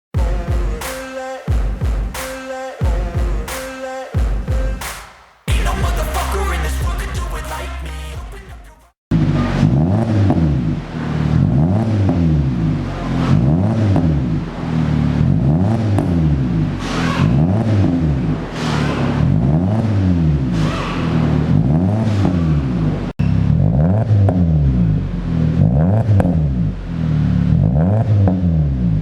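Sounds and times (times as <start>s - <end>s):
car engine revving: 9.1s - 29.0s.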